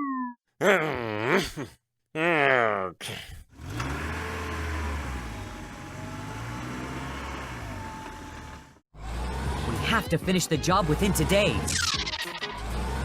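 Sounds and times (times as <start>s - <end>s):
vehicle engine humming: 3.6s - 10.0s.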